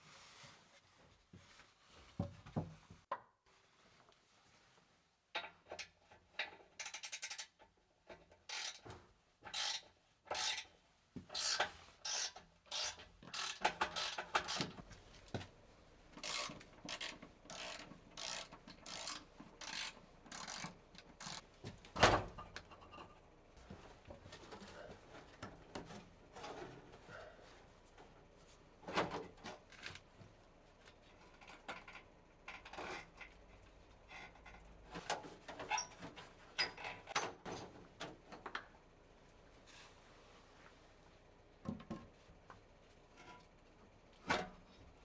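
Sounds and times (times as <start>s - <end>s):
hand tool rasping strokes: 16.2s - 21.4s.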